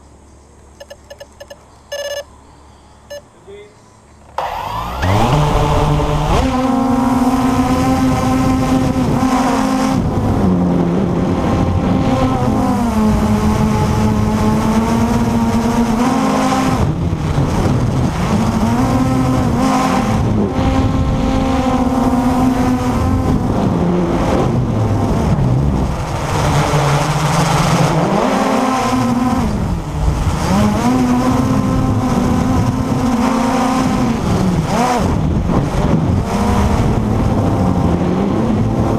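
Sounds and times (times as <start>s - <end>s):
quadcopter motors whining: 0.8s - 2.3s, 4.2s - 10.6s.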